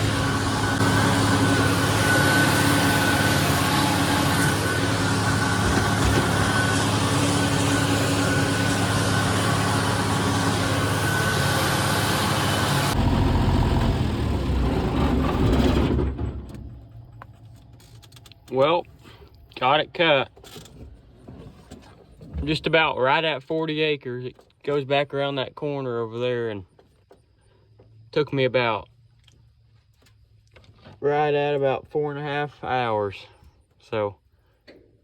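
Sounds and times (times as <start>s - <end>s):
faint high whine: 0.0s - 13.4s
tractor engine with hay mower: 0.0s - 20.7s.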